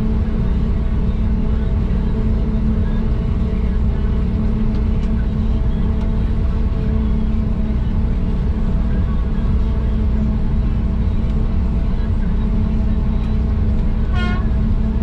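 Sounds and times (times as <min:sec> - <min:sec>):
forage harvester droning: 0:00.0 - 0:15.0.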